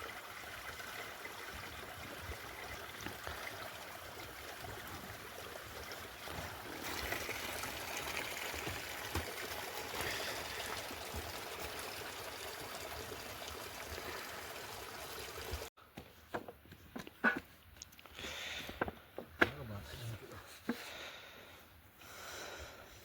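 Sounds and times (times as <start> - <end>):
water pouring and running: 0.0 - 15.7.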